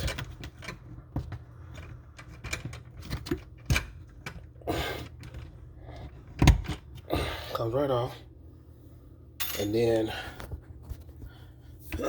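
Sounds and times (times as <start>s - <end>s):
metal parts clicking and knocking: 0.0s - 4.5s.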